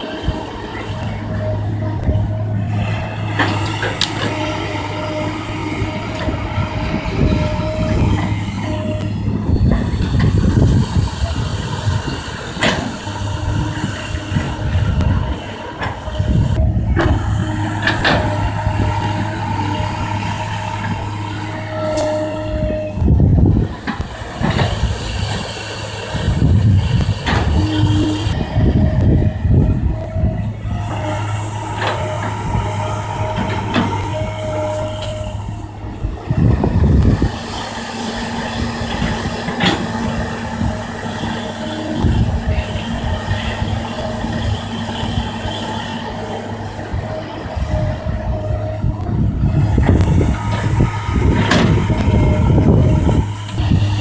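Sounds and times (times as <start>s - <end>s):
excavator diesel engine running: 0.0s - 54.0s
low rumble: 13.2s - 54.0s.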